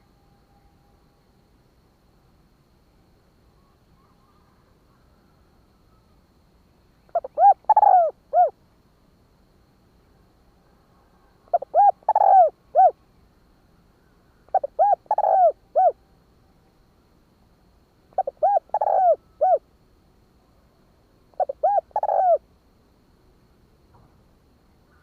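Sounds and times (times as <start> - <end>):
dove cooing: 7.1 - 8.6, 11.5 - 13.0, 14.5 - 16.0, 18.1 - 19.6, 21.3 - 22.4.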